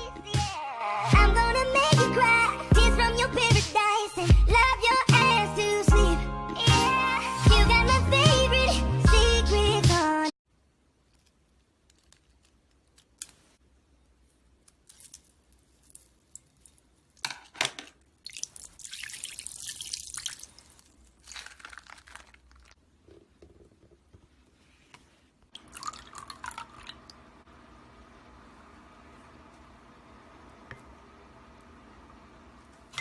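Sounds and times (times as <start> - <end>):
slime squelching: 14.5 - 17.2, 18.0 - 23.0.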